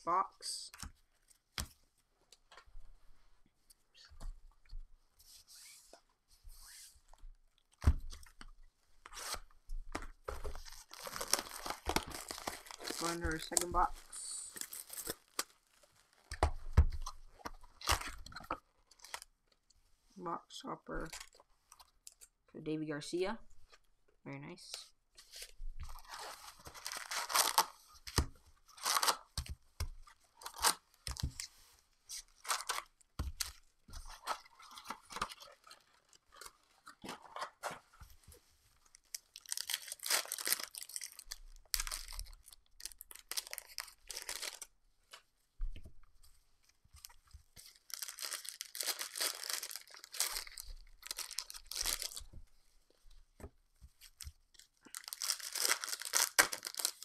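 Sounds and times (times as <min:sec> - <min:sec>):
wrappers tearing and crinkling: 0:10.4 - 0:16.4, 0:17.0 - 0:19.3, 0:25.4 - 0:29.3, 0:30.3 - 0:31.4, 0:32.2 - 0:37.7, 0:38.8 - 0:44.7, 0:47.0 - 0:52.2, 0:54.0 - 0:57.0.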